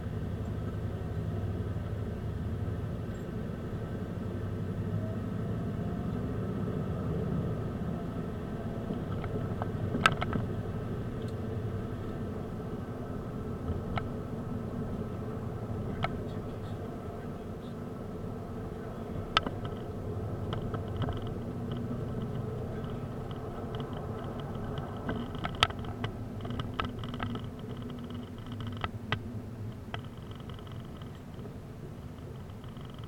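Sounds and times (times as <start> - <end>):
car engine and road rumble: 0.0 - 33.0
sharp clicks and knocks: 8.7 - 11.4, 13.6 - 14.2, 15.7 - 16.9, 19.2 - 33.0.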